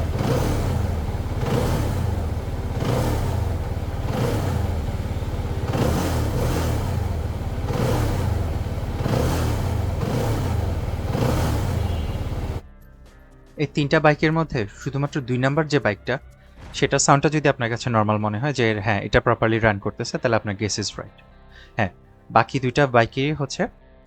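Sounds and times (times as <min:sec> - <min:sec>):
motorcycle engine revving: 0:00.0 - 0:12.6.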